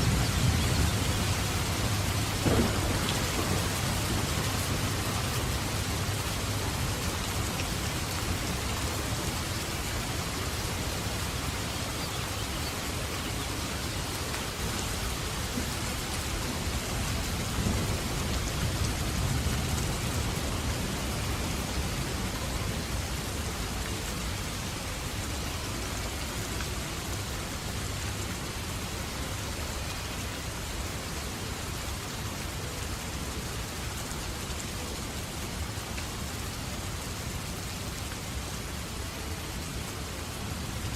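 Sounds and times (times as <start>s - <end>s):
distant thunder rumble: 0.0s - 7.8s
heavy rain falling: 0.0s - 40.9s.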